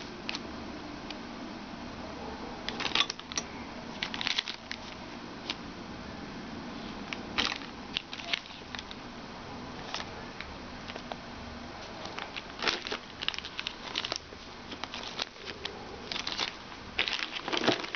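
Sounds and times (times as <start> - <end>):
packaging rustling: 2.7 - 5.6, 11.8 - 17.9.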